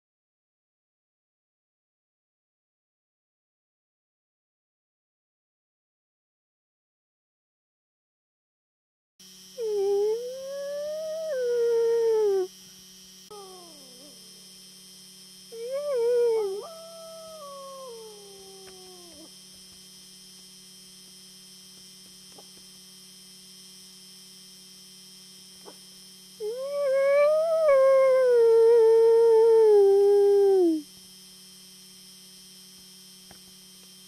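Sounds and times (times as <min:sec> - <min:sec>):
faint steady hum: 0:09.2 - 0:34.0
wolf howling: 0:09.6 - 0:12.5, 0:13.3 - 0:14.4, 0:15.6 - 0:19.3, 0:26.4 - 0:30.8.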